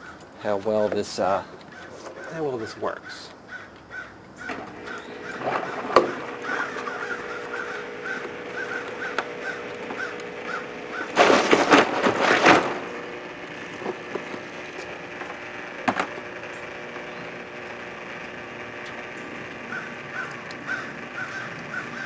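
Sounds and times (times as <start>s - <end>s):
bird calling in short notes: 1.8s - 11.1s
loud rustling: 4.4s - 22.0s.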